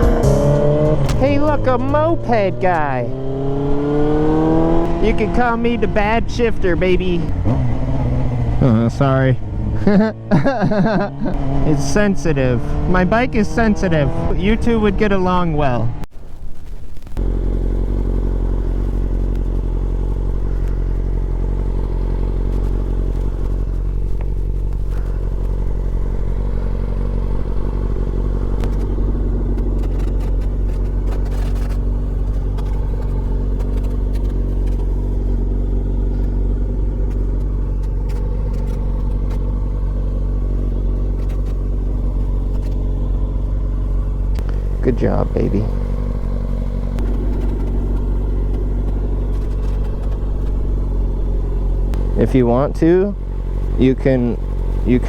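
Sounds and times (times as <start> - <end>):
motorcycle engine idling: 0.0 - 3.0, 17.2 - 55.0.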